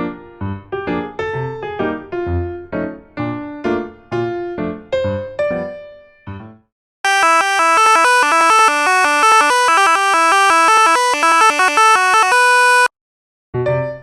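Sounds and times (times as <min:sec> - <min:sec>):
buzzy synthesizer melody: 0:07.1 - 0:12.9.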